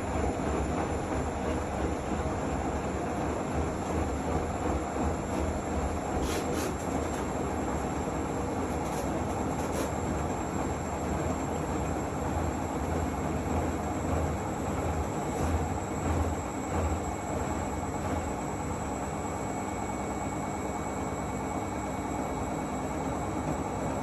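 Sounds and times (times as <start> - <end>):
washing machine rumbling: 0.0 - 24.0.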